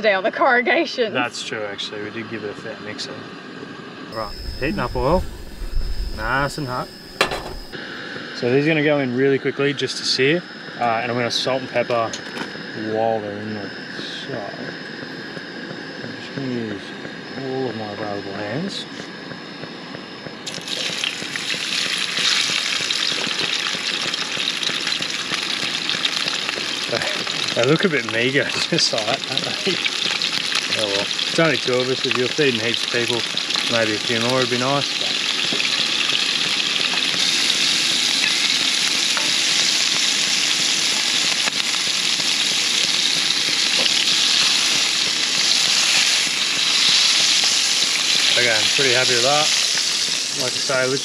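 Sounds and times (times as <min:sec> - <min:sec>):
prawns sizzling in hot oil: 0:04.1 - 0:08.5, 0:20.4 - 0:51.0.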